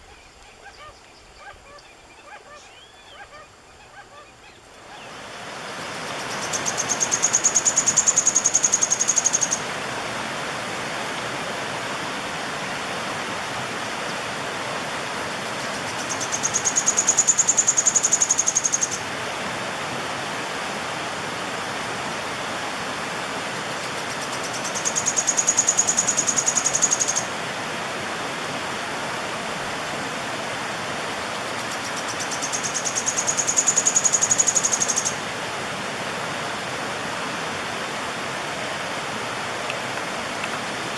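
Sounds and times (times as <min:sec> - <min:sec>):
bird singing high rapid trill: 0:31.8 - 0:35.2.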